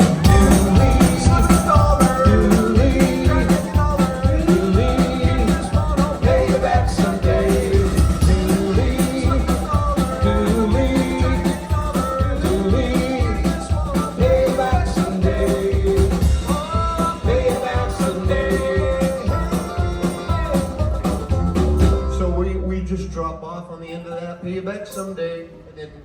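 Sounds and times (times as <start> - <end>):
live band playing country song: 0.0 - 22.4.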